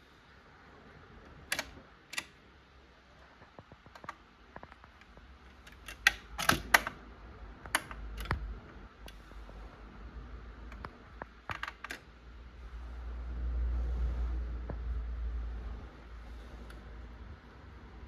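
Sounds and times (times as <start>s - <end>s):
record changer clicks and clunks: 1.3s - 2.4s, 3.7s - 7.0s, 7.6s - 9.2s, 10.7s - 12.1s.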